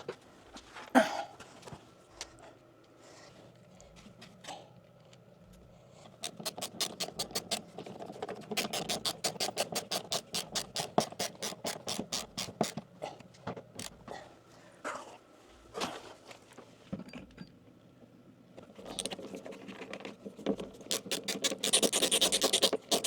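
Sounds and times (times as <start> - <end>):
rapid ratcheting clicks: 6.2 - 7.7, 8.6 - 12.8, 20.9 - 23.0
handling and scraping: 18.6 - 23.0.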